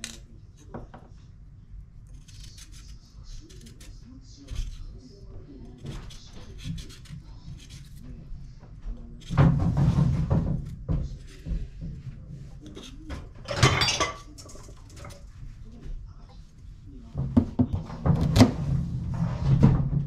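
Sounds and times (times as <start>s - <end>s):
kitchen handling sounds: 9.2s - 15.4s.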